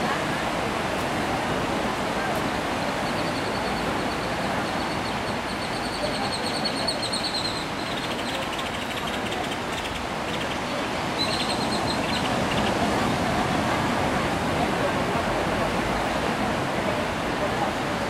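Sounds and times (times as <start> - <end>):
sea surf: 0.0 - 18.0
small birds trilling: 4.8 - 12.8.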